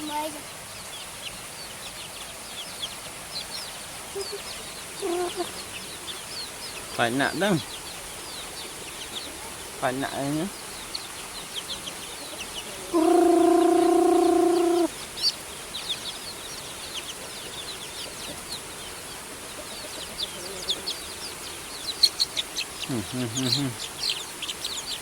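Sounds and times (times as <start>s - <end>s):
chicks peeping: 0.0s - 25.0s
steady even-pitched tone: 13.0s - 14.9s.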